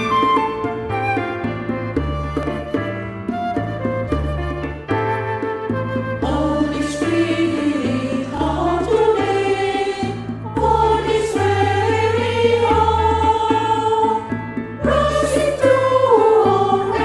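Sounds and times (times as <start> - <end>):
women's choir singing: 6.2 - 17.0.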